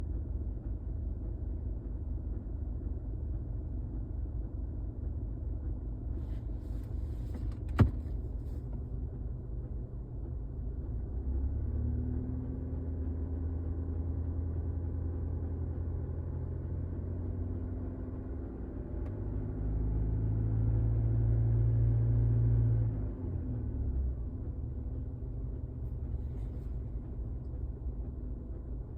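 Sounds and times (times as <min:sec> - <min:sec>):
diesel engine running: 0:23.0 - 0:28.9.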